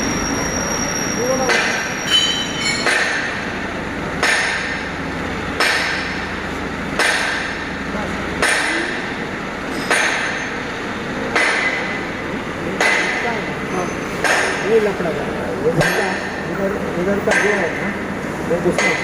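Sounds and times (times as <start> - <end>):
hammer blows on metal: 0.0 - 3.6
low machinery hum: 0.0 - 19.0.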